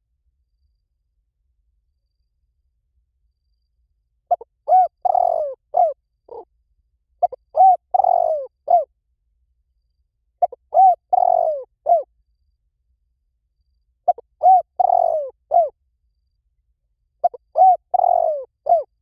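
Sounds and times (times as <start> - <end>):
dove cooing: 4.3 - 6.5, 7.2 - 8.9, 10.4 - 12.1, 14.1 - 15.7, 17.2 - 19.0.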